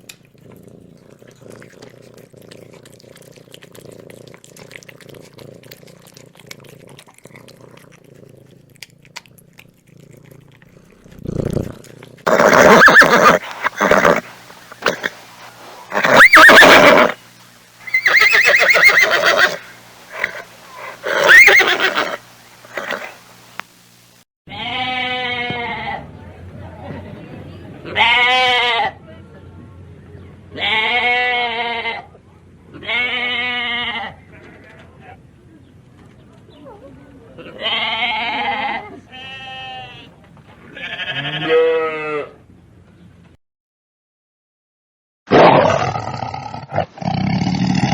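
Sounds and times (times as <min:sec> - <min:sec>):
horse whinnying: 0:12.2 - 0:15.2, 0:15.9 - 0:17.2, 0:17.8 - 0:23.2
sheep bleating: 0:37.5 - 0:40.1, 0:40.7 - 0:42.3.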